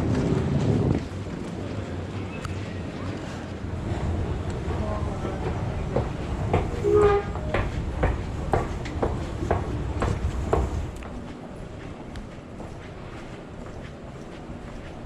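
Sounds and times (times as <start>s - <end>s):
footsteps walking: 6.0s - 15.0s.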